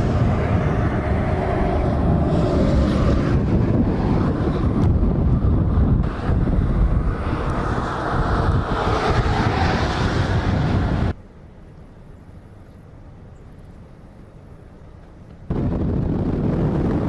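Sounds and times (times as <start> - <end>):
wind buffeting microphone: 0.0 - 11.2, 14.9 - 17.0
vehicle rumble: 0.0 - 17.0.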